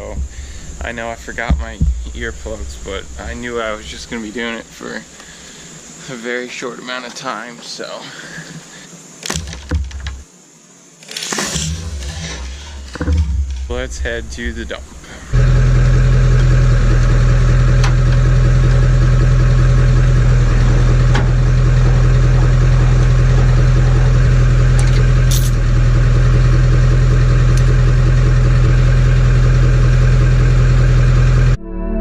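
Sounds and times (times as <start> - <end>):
faint rattles: 11.0 - 28.8
truck engine running: 11.6 - 31.6.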